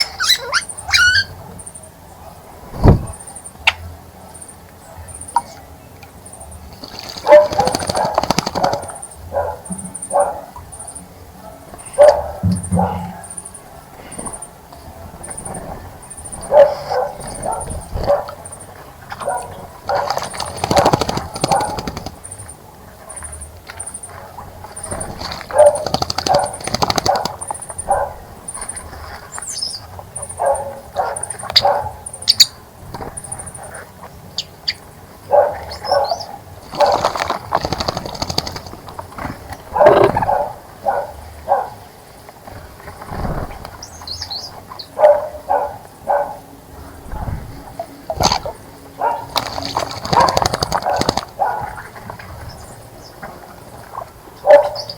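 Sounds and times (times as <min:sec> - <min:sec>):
high bird chirps: 0:00.0 - 0:01.4
fast repeated high bird call: 0:00.0 - 0:01.8
birds splashing and flapping wings: 0:06.6 - 0:09.1, 0:14.1 - 0:30.2, 0:36.4 - 0:40.6, 0:42.4 - 0:44.7, 0:47.0 - 0:54.9.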